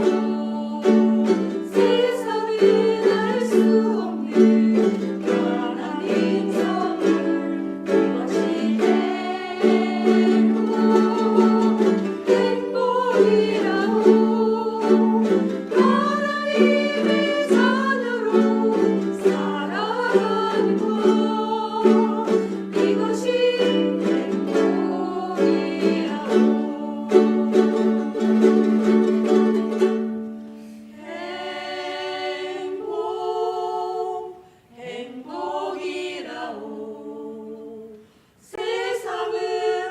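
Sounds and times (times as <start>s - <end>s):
group singing: 0.0s - 29.6s, 30.9s - 39.9s
ukulele strumming chords: 0.0s - 33.9s.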